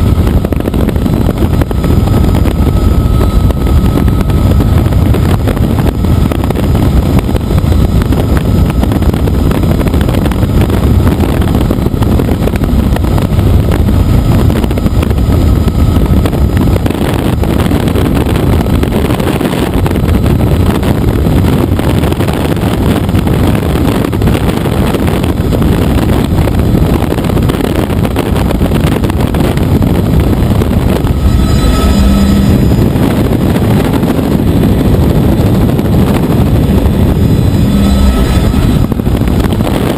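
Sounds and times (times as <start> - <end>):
helicopter rotor and engine: 0.0 - 39.9
faint tone: 30.0 - 39.9.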